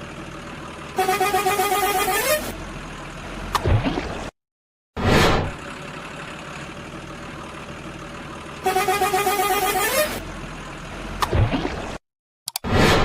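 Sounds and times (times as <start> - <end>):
engine running: 0.0 - 4.3, 5.0 - 12.0
horn tone bending upward: 8.6 - 10.2.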